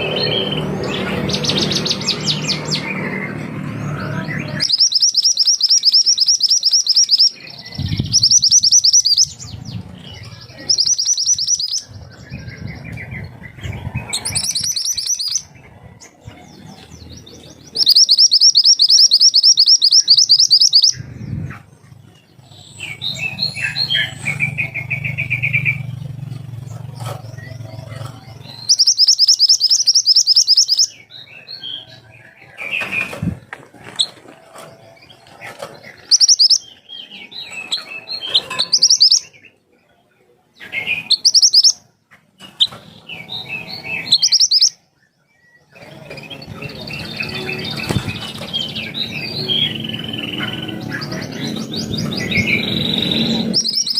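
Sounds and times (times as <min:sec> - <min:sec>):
songbird high-pitched trills: 0:04.0 - 0:15.5, 0:17.1 - 0:21.0, 0:27.2 - 0:32.0, 0:35.8 - 0:39.5, 0:40.8 - 0:41.9, 0:42.5 - 0:53.9
softer bird chirps: 0:04.6 - 0:09.4, 0:10.2 - 0:11.9, 0:17.7 - 0:21.0, 0:28.4 - 0:31.0, 0:36.0 - 0:39.5, 0:40.8 - 0:41.8.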